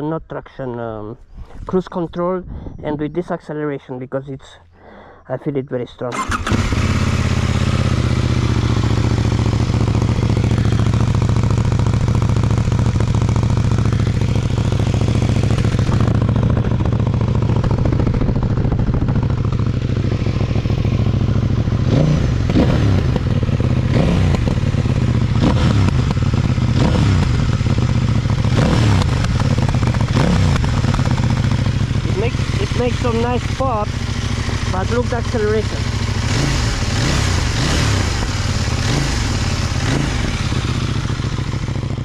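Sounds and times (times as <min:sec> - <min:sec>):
engine revving throttle blips: 0:06.1 - 0:42.0
motorcycle engine idling: 0:06.1 - 0:42.0
exhaust pops: 0:28.5 - 0:35.9.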